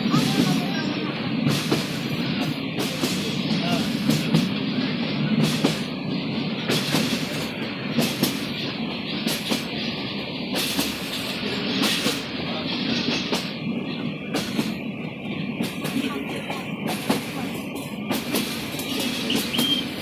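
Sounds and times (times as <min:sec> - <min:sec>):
train wheels rumbling on rails: 0:00.0 - 0:20.0
wheels clacking over rail joints: 0:15.6 - 0:20.0.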